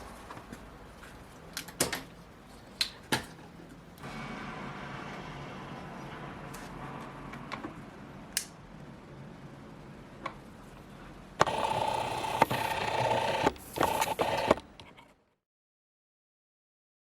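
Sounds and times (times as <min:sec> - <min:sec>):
printer clicks: 0:11.4 - 0:14.8
printer motors whining: 0:11.4 - 0:14.8.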